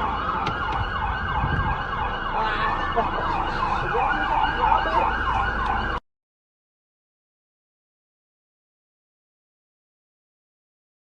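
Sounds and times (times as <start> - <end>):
siren yelping: 0.0 - 6.0.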